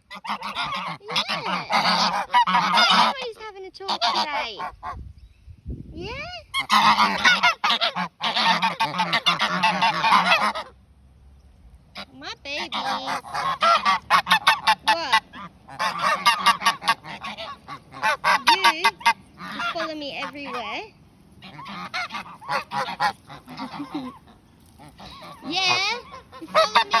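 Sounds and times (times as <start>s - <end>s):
geese honking: 0.0s - 4.9s, 6.5s - 10.8s, 12.0s - 27.0s.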